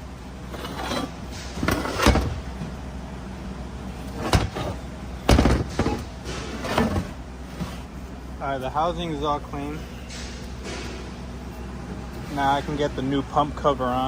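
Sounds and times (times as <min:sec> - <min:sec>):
steady low hum: 0:00.0 - 0:14.0
metal parts and tools clunking: 0:00.5 - 0:02.8, 0:04.0 - 0:07.9, 0:09.7 - 0:13.2.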